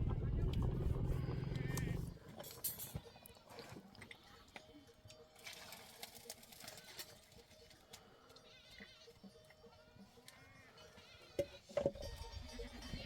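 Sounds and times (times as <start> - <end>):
livestock bleating: 8.4 - 13.0.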